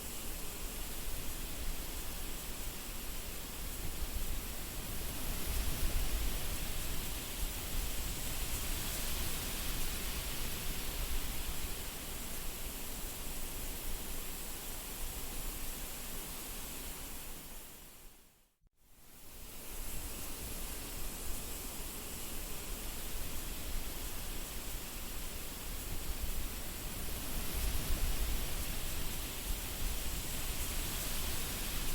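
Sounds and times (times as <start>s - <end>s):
wind rumble on microphone: 3.1s - 12.0s, 23.0s - 31.9s.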